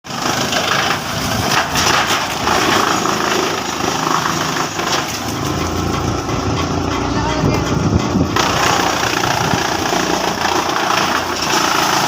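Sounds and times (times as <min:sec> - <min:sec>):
wood chipper running: 0:00.0 - 0:12.0
wood cracking: 0:00.1 - 0:05.6, 0:08.4 - 0:12.0.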